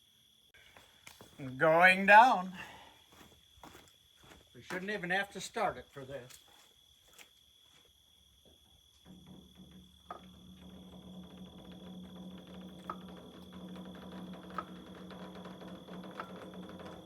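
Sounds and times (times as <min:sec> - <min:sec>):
low machine hum: 0:09.1 - 0:17.0.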